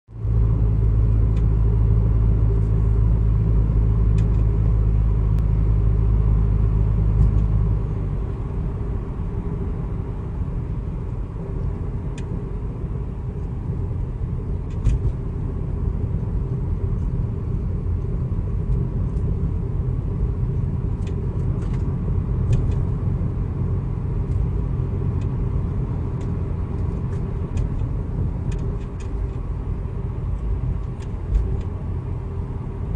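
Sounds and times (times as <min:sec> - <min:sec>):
car driving drone: 0:00.1 - 0:32.9
road rumble: 0:00.1 - 0:32.9
faint suspension clicks and knocks: 0:20.9 - 0:22.8, 0:26.2 - 0:29.5, 0:30.3 - 0:31.8.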